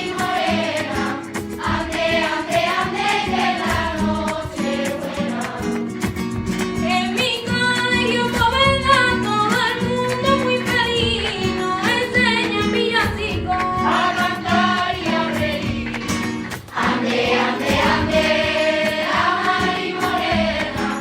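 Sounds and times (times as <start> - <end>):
voices singing a carol: 0.0 - 5.8, 13.8 - 16.0, 16.7 - 21.0
instrumental accompaniment: 0.0 - 21.0.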